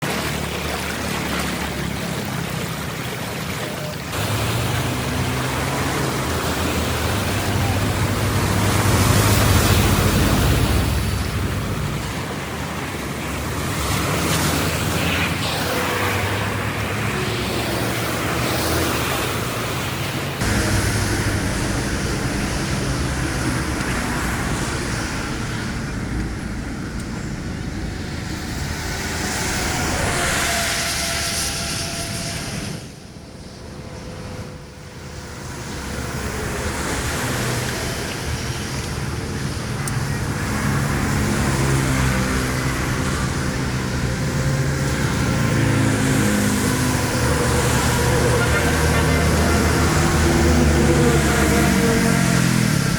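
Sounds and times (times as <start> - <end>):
steady rushing noise: 0.0 - 52.9
low engine-like hum: 20.0 - 52.9.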